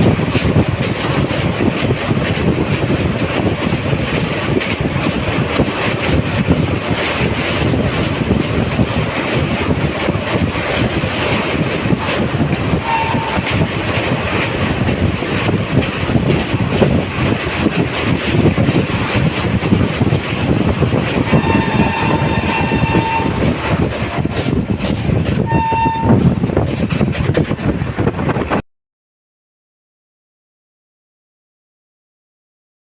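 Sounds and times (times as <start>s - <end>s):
train rumbling: 0.0s - 28.6s
train horn blasts: 12.8s - 13.6s, 21.3s - 23.5s, 25.4s - 26.2s.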